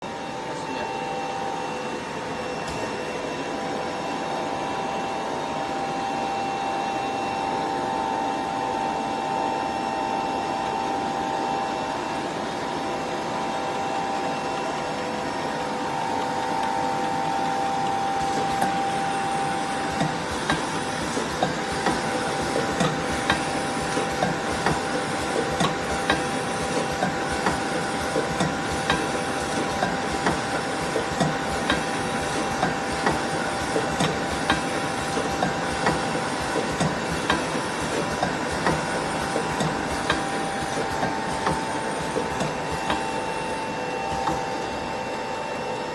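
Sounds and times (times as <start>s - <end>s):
filling machine motor hum and hiss: 0.0s - 45.9s
machine clicks: 17.8s - 43.5s.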